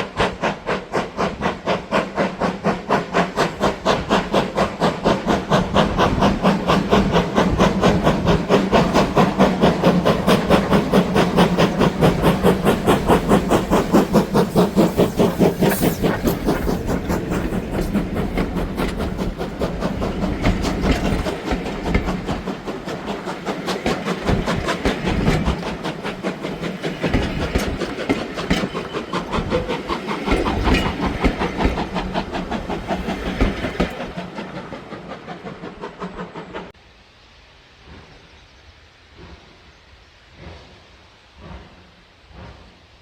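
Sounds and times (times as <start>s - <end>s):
train wheels clattering over rails: 0.0s - 36.8s
steady hiss: 35.3s - 43.0s.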